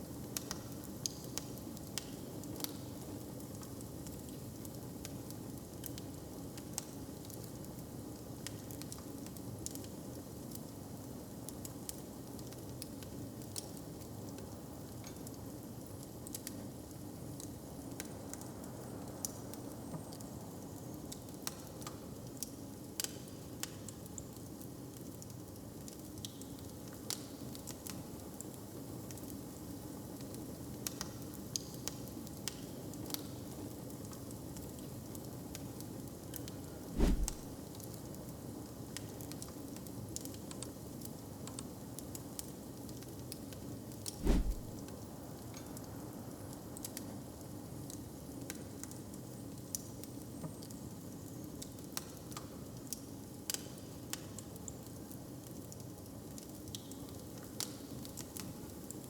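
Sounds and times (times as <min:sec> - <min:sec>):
wood fire crackling: 0:37.0 - 0:37.6, 0:44.2 - 0:44.8.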